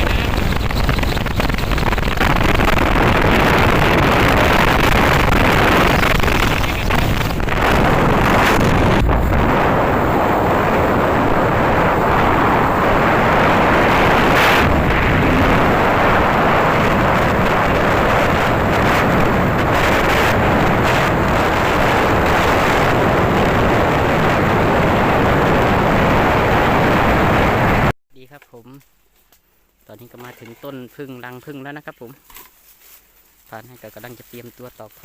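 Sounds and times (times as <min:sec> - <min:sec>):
wind buffeting microphone: 0:00.0 - 0:27.9.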